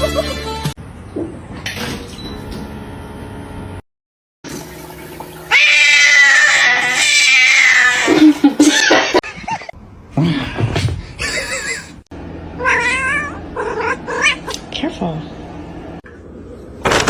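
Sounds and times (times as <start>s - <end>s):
cat yowling: 5.5s - 9.1s, 12.6s - 14.6s.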